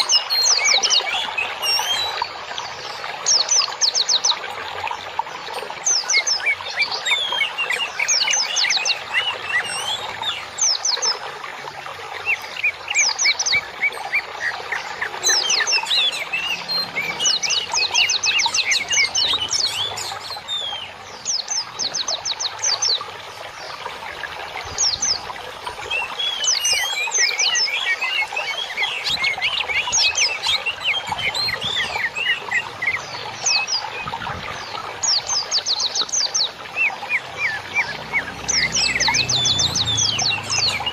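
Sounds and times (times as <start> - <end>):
songbird twittering: 12.2 - 23.1, 24.6 - 40.9.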